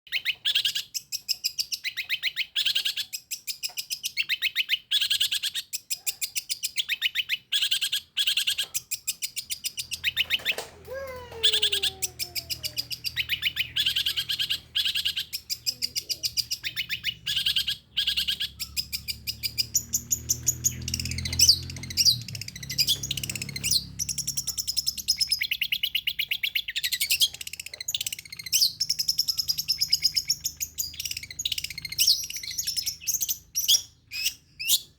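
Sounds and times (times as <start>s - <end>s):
bird singing rapid high notes: 6.8s - 34.9s.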